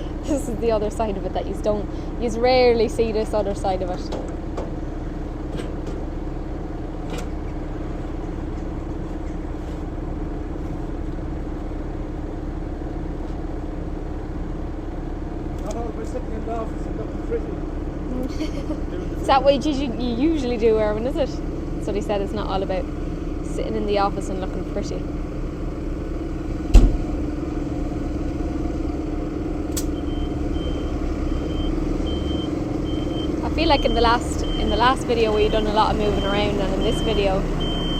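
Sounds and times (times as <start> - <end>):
tractor engine running: 0.0 - 37.9
loud thump: 26.7 - 27.2.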